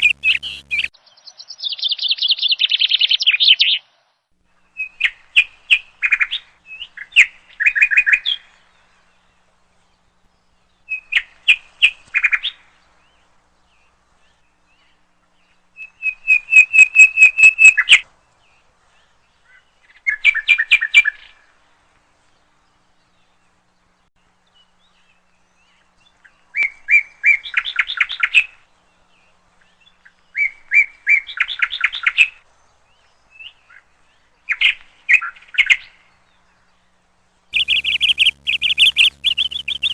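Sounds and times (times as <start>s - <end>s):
songbird chirping: 0.0s - 3.7s, 37.6s - 39.9s.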